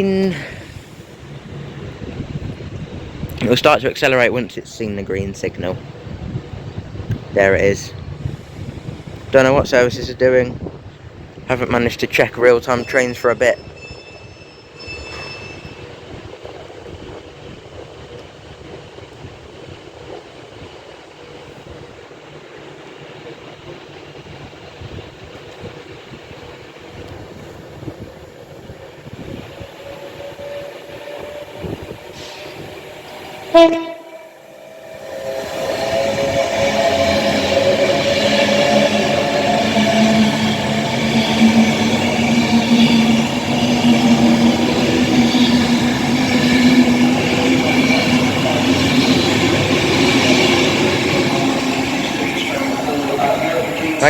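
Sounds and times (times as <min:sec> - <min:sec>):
rail and wheel noise: 0:00.0 - 0:54.0
train running noise: 0:00.0 - 0:54.0
train horn blast: 0:33.5 - 0:34.5.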